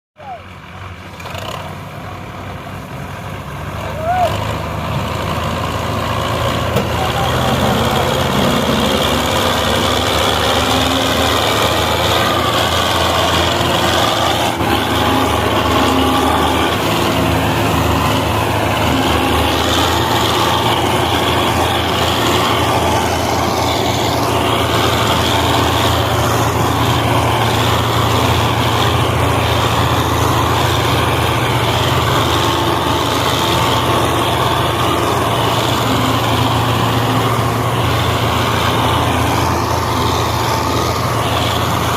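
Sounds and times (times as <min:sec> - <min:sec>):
tractor diesel engine running: 0:00.2 - 0:41.9.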